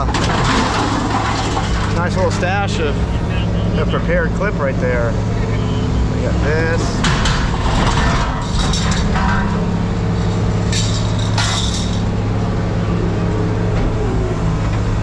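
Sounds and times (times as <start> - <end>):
vehicle engine idling: 0.8 - 15.0
metallic clinks and rattles: 10.2 - 12.2.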